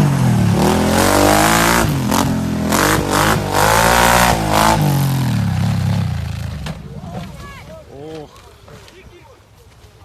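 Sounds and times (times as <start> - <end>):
quad engine revving: 0.0 - 6.7.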